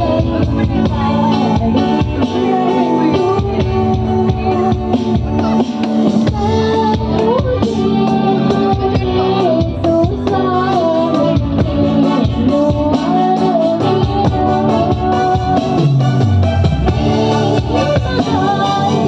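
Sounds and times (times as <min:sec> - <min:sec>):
band with beat bass and keyboard: 0:00.0 - 0:19.0
woman singing: 0:00.0 - 0:19.0.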